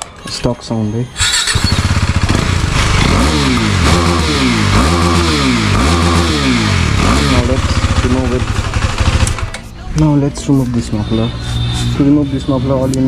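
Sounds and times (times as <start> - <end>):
motorcycle engine idling and revving: 1.2 - 9.6.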